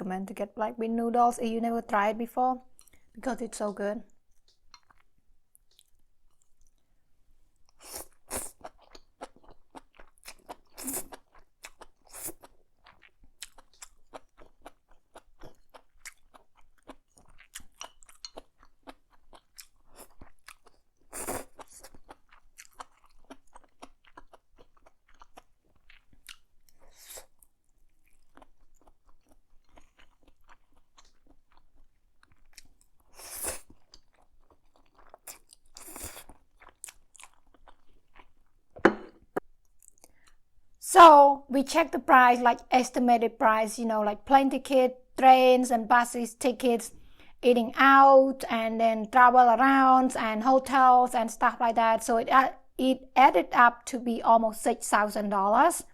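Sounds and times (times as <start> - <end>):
chewing and crunching food: 4.0 - 38.8, 39.6 - 40.8.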